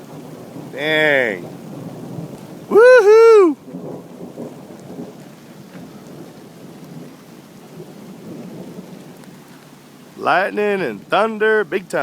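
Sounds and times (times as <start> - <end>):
raindrop ticks: 0.0 - 2.8, 3.6 - 12.0
rain falling: 0.0 - 12.0
thunder rumbling: 0.0 - 12.0
person shouting woohoo: 2.7 - 3.6.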